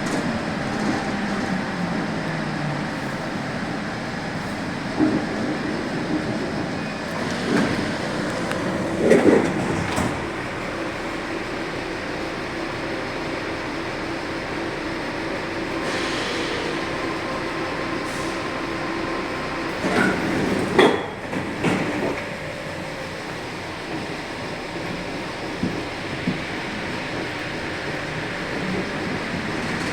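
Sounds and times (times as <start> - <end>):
train rumbling: 0.0 - 29.9.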